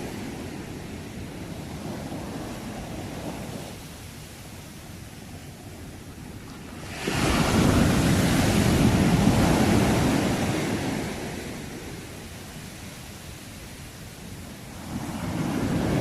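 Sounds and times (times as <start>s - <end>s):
sea wave breaking on shore: 6.6s - 12.1s.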